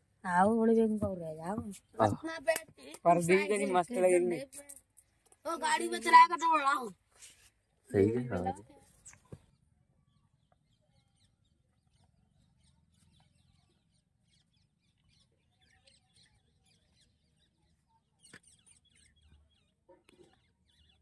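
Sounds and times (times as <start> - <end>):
faint bird chirps: 7.4 - 21.0.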